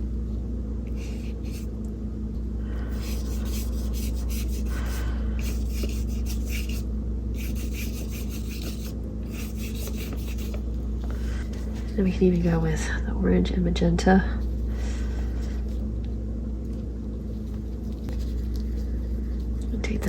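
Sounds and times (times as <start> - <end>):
low hum: 0.0 - 20.0
paintbrush scrubbing on paper: 0.9 - 1.7, 2.9 - 10.6, 17.3 - 19.6.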